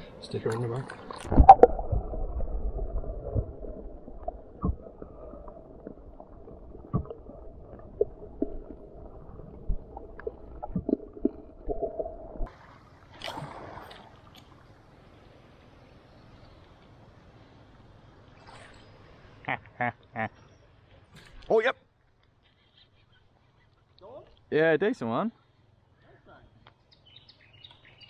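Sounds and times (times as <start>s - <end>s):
muffled underwater water movement: 0.0s - 19.4s
rush of water: 12.0s - 15.6s.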